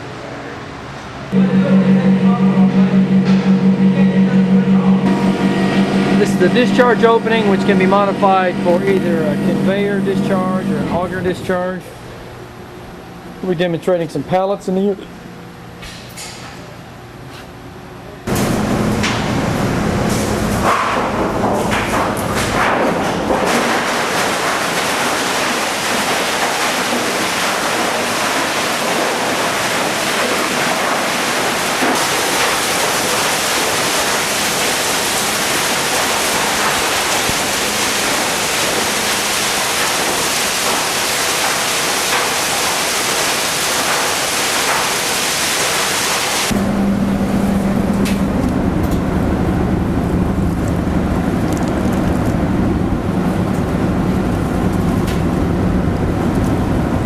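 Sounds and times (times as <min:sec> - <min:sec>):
machine hum with held tone: 0:01.3 - 0:13.6, 0:15.0 - 0:57.0
grinder crunching wooden pallets: 0:05.0 - 0:11.7, 0:18.3 - 0:46.8.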